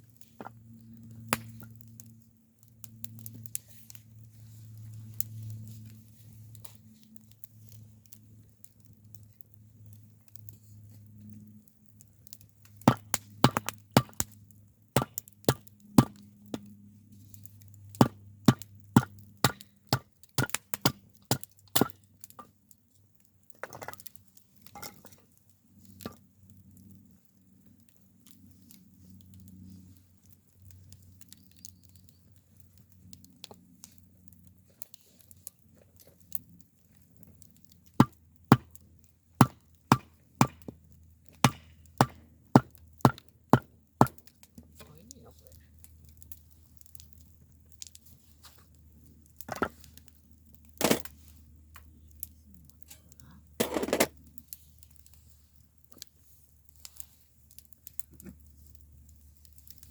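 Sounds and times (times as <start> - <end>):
wooden knocks of splitting firewood: 12.8 - 14.3, 15.0 - 16.7, 18.0 - 22.5, 23.6 - 25.2, 38.0 - 38.8, 39.4 - 44.7, 49.5 - 49.9, 50.8 - 51.2.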